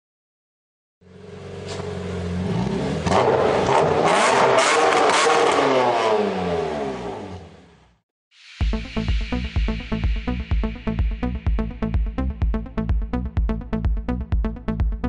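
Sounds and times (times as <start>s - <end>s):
diesel engine revving: 1.0s - 8.0s
electronic music: 8.4s - 15.0s.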